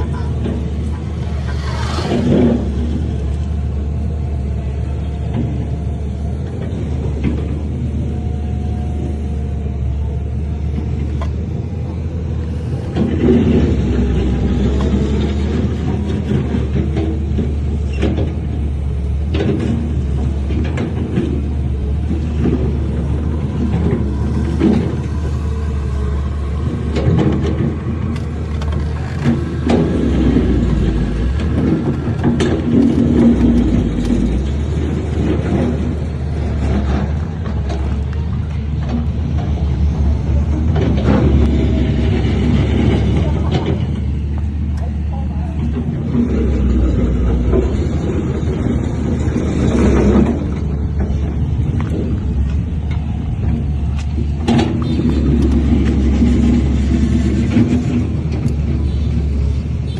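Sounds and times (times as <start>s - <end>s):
diesel machinery engine rumble: 0.0s - 59.9s
knocks and clanks: 12.4s - 59.9s.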